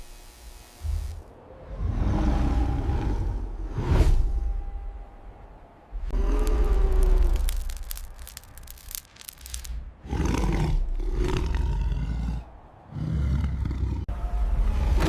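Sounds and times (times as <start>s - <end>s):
big cat roaring and snarling: 1.7s - 3.8s, 10.0s - 14.1s
crackling clicks: 6.2s - 9.9s.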